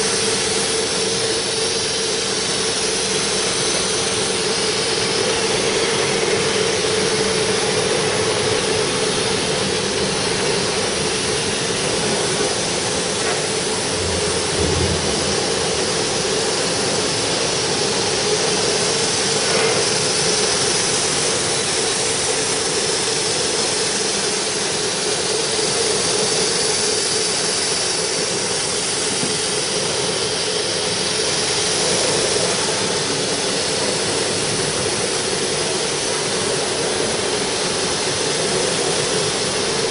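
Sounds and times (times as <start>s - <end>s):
constant machine hum: 0.0s - 39.9s.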